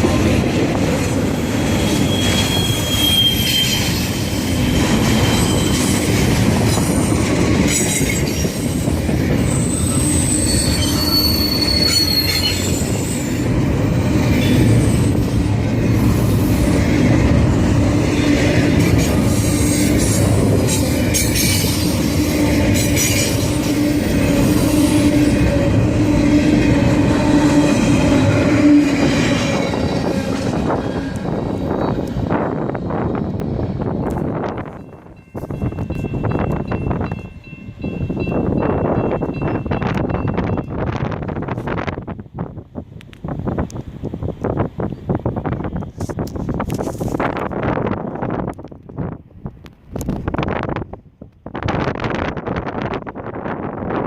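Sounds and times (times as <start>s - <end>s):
train rumbling on track: 0.0s - 54.0s
high-pitched wheel squeals: 1.3s - 4.5s, 5.2s - 6.0s, 9.4s - 13.4s.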